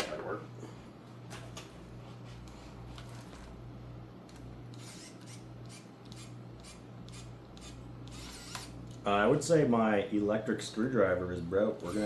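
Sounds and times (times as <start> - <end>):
screwdriver clicking and scraping: 4.7 - 8.8.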